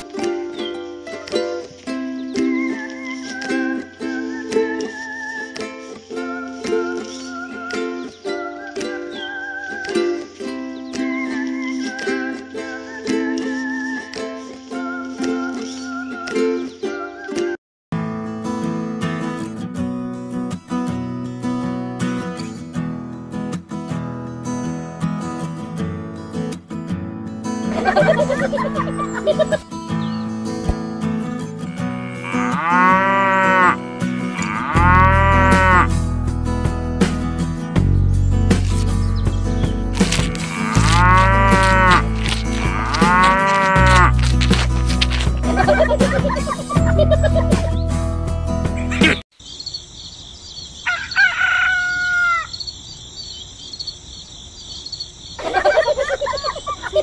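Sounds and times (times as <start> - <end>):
background music: 27.0 - 49.2
cow mooing: 31.6 - 35.9, 40.3 - 44.9
high-pitched chattering voices: 40.0 - 47.6
rooster crowing: 50.8 - 52.6.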